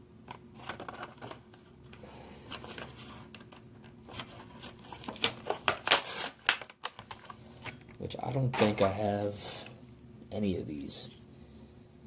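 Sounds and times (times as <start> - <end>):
handling toy truck clicks and rustles: 0.3 - 7.9.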